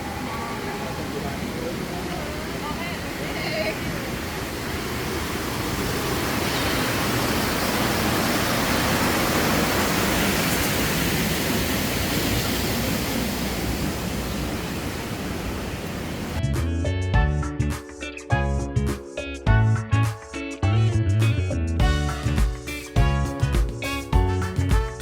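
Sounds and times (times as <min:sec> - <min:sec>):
truck rushing noise: 0:00.0 - 0:16.4
music: 0:16.4 - 0:25.0.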